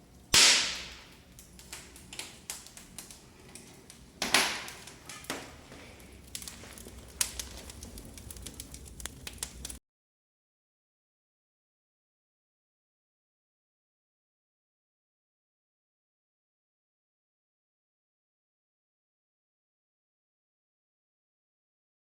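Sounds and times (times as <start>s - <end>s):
loud fire snaps: 0.0s - 9.8s
wood fire crackling and popping: 0.0s - 9.8s.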